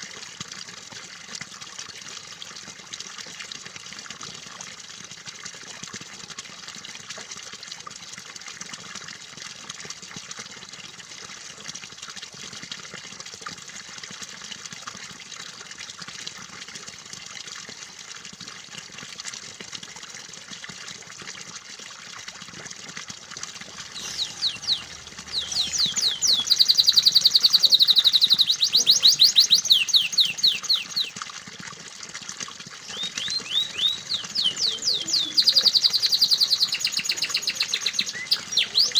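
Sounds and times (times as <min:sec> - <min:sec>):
water trickling: 0:00.0 - 0:38.9
canary singing trills: 0:23.8 - 0:31.1, 0:32.8 - 0:38.9.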